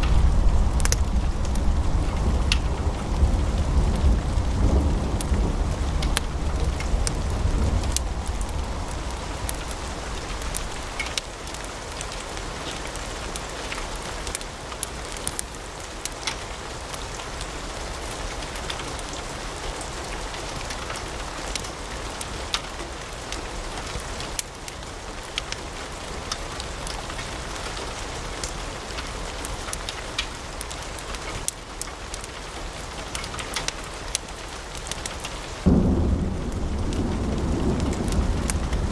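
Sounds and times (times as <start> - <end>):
low rumble: 0.0 - 11.2, 35.7 - 38.9
wood fire crackling: 0.0 - 38.9.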